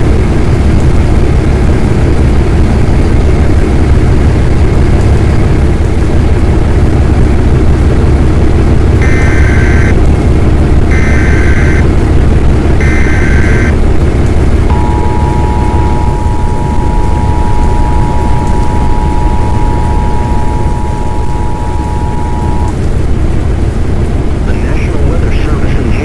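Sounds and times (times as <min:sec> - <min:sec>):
low vehicle rumble: 0:00.0 - 0:26.0
screeching data bursts: 0:09.0 - 0:10.0, 0:10.9 - 0:11.9, 0:12.8 - 0:13.8
two-tone attention signal: 0:09.0 - 0:10.0, 0:10.9 - 0:11.8, 0:12.8 - 0:13.7, 0:14.7 - 0:22.8.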